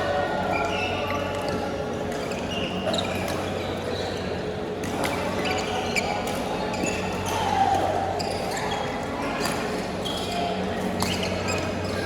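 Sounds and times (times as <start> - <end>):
shoe squeaks on court: 5.0 - 7.4, 8.2 - 12.0.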